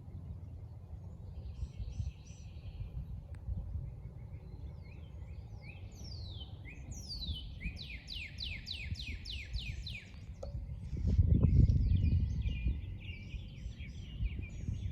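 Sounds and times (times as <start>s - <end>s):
low outdoor rumble: 0.0s - 8.1s
songbird singing: 0.0s - 14.9s.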